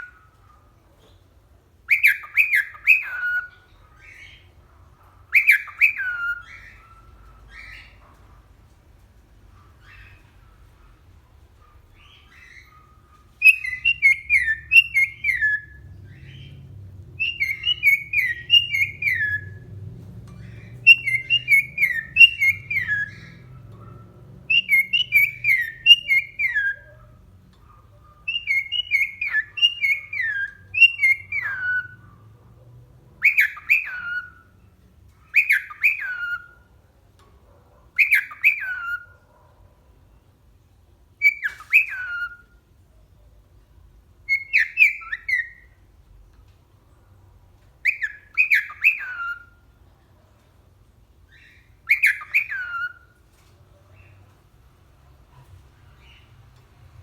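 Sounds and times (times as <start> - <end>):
cockatiel whistling: 1.9 - 4.4, 5.3 - 8.0, 12.0 - 16.5, 17.2 - 19.6, 20.4 - 23.9, 24.5 - 27.0, 28.3 - 32.0, 33.2 - 34.5, 35.3 - 36.6, 38.0 - 39.1, 41.2 - 42.6, 44.3 - 45.7, 47.8 - 49.6, 51.3 - 53.1.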